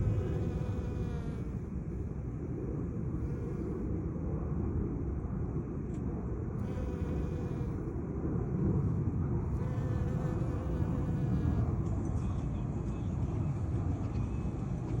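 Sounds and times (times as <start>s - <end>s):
bees buzzing: 0.0s - 1.6s, 6.6s - 7.9s, 9.6s - 11.7s.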